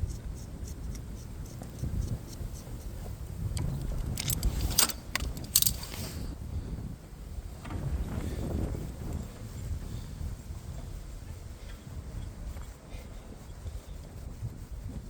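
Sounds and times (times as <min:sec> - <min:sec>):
metal objects jangling: 0:03.9 - 0:06.0.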